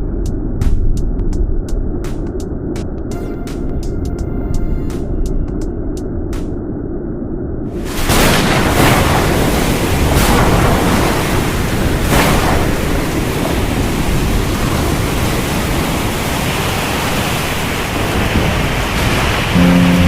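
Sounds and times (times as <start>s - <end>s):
heavy rain pouring: 7.7s - 20.0s.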